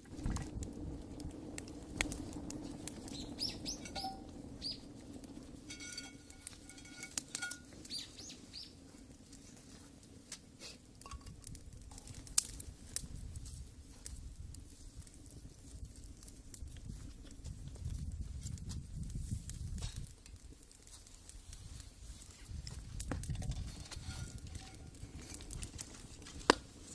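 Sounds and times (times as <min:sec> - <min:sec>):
small birds chirping: 0:03.0 - 0:04.9, 0:07.8 - 0:08.8.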